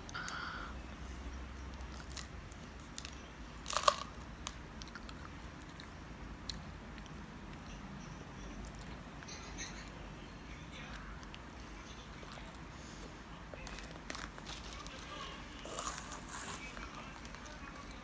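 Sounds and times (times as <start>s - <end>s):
candy crunching in mouth: 1.7s - 7.3s, 13.6s - 18.0s.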